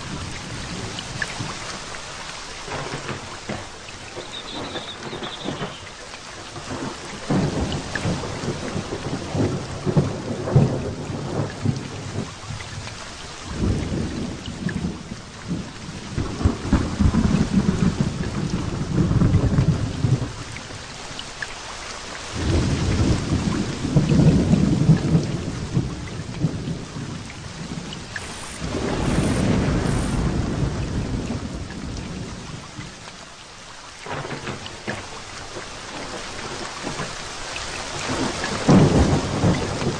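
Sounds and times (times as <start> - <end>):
heavy rain: 0.0 - 39.9
thunder rumbling: 2.7 - 12.3, 22.4 - 32.9, 38.0 - 39.9.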